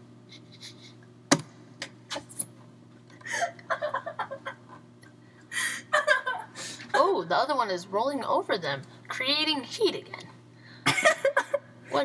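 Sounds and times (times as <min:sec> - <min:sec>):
faint steady hum: 0:00.0 - 0:12.0
stifled snickering laughter: 0:03.2 - 0:04.8.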